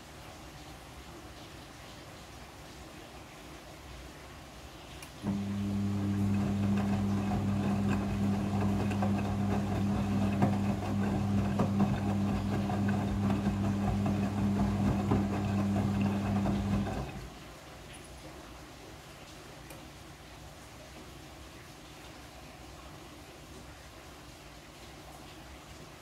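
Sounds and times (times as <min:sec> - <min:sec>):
washing machine humming: 0:04.9 - 0:17.7.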